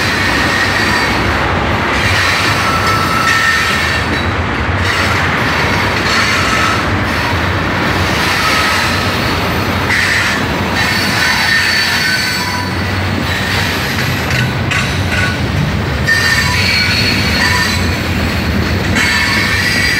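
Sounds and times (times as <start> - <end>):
rumble of train wheels on rail: 0.0 - 19.9
high wheel squeals: 2.0 - 4.3, 8.3 - 9.2, 9.9 - 14.2, 16.0 - 18.0, 19.0 - 19.9.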